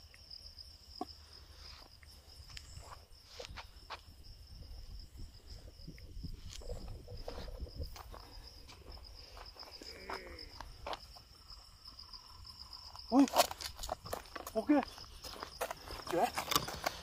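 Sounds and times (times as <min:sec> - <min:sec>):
crickets chirring: 0:00.0 - 0:17.0
footsteps on road: 0:07.4 - 0:11.3, 0:13.2 - 0:17.0.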